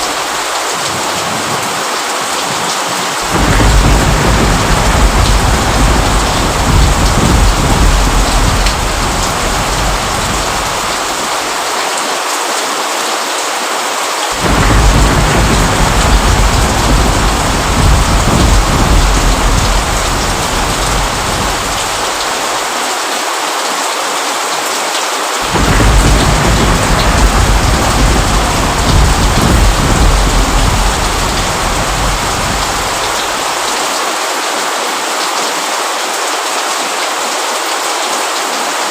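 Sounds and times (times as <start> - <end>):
heavy rain: 0.0 - 38.9
rolling thunder: 3.2 - 11.6, 14.3 - 22.7, 25.4 - 33.8.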